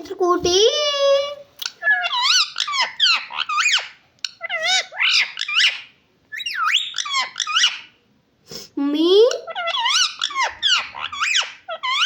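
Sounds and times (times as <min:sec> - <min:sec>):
parrot squawking: 0:01.6 - 0:08.0, 0:09.3 - 0:12.0.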